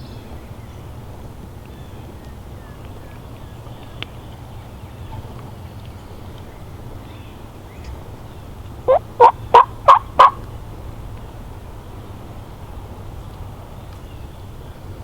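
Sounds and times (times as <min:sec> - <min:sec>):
turkey yelping: 0:08.8 - 0:11.4.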